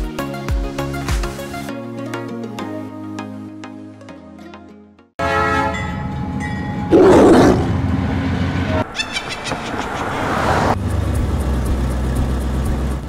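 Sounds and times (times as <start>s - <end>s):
train whistle: 5.2s - 6.0s.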